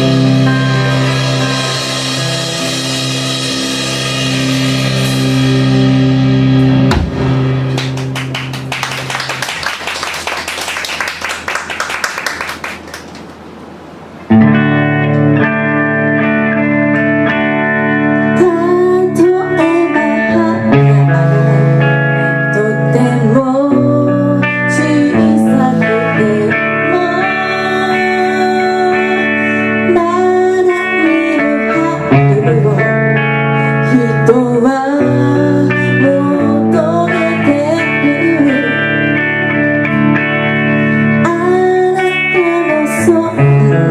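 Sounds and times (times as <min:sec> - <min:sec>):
electric guitar lead bending: 0:00.0 - 0:09.6, 0:14.2 - 0:43.9
rock band playing: 0:00.0 - 0:10.0, 0:14.3 - 0:23.0, 0:35.1 - 0:43.7
drums and cymbals clattering: 0:00.2 - 0:07.8.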